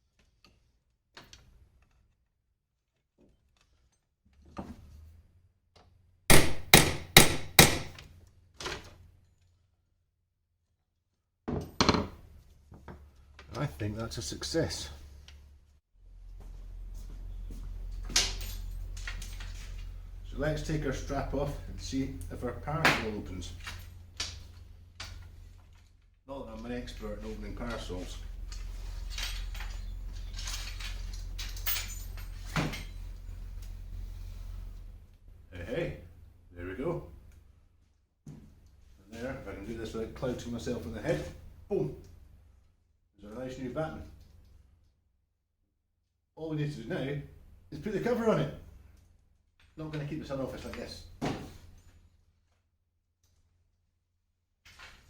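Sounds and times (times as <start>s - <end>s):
hammer striking metal punch: 6.3s - 8.0s
loud knock: 6.3s - 8.0s.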